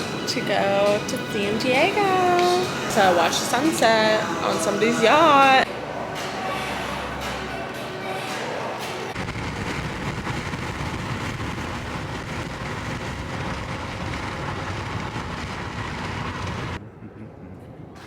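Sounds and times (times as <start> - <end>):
moving vehicle rumble and road noise: 9.2 - 16.8.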